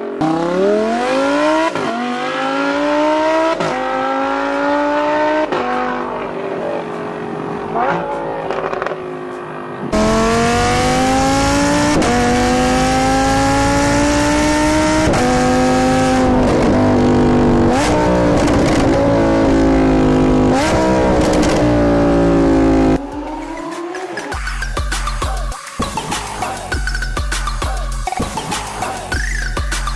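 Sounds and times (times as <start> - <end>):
sports car engine revving: 0.0 - 23.3.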